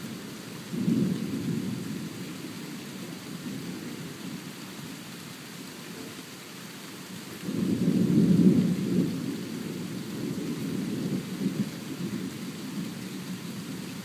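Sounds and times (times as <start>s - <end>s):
thunder rumbling: 0.0s - 4.4s, 7.4s - 14.0s
rain hissing: 0.0s - 14.0s.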